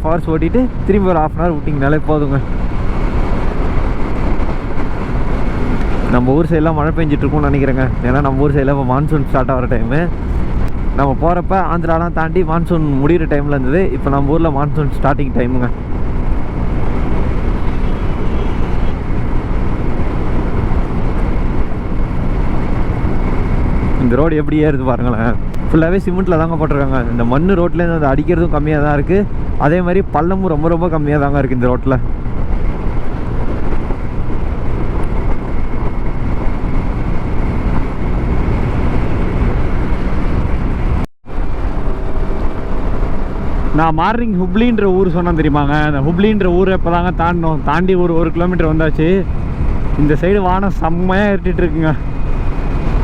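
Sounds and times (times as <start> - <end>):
road noise: 0.0 - 53.0
scooter engine drone: 0.0 - 53.0
wind rush: 0.0 - 53.0
small scooter engine droning: 15.4 - 26.3, 47.3 - 53.0.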